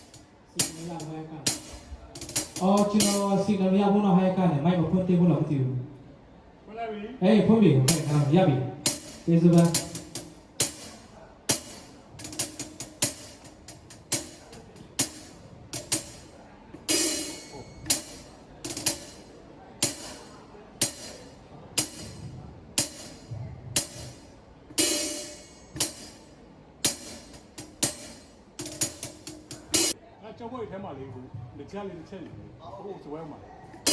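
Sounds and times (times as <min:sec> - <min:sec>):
drum kit slow groove: 0:00.0 - 0:03.4, 0:07.9 - 0:30.0.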